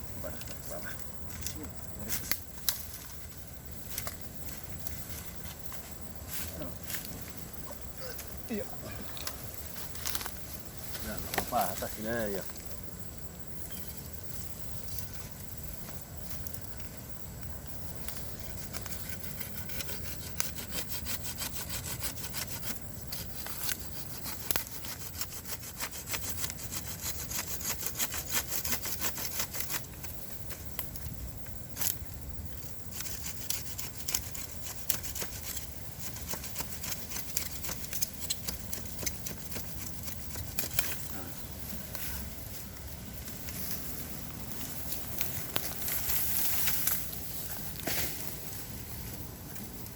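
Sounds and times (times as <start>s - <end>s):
saw cutting through bamboo: 18.8s - 29.9s, 32.9s - 41.0s.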